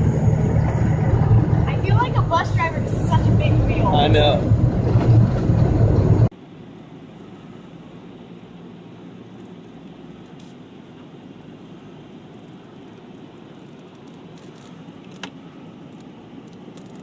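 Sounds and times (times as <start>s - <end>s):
truck engine running: 0.0s - 6.3s.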